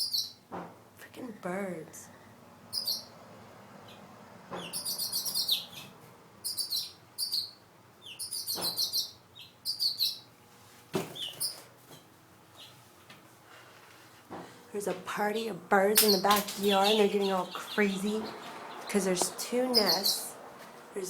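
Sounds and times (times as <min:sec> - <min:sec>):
small birds chirping: 0:00.0 - 0:00.5, 0:02.7 - 0:10.4, 0:11.1 - 0:11.7, 0:12.4 - 0:13.1, 0:16.0 - 0:21.0.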